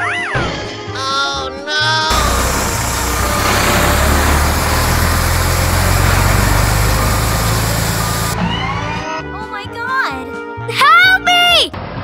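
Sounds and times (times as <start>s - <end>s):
gravel sliding out: 2.1s - 8.4s
truck engine rumble: 2.1s - 8.4s.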